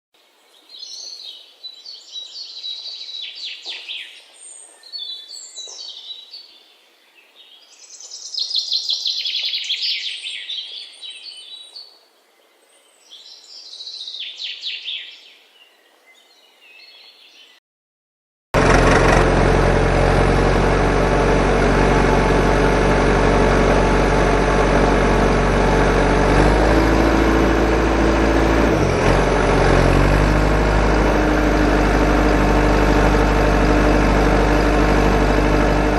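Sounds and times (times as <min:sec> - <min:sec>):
engine idling: 0:18.6 - 0:35.9.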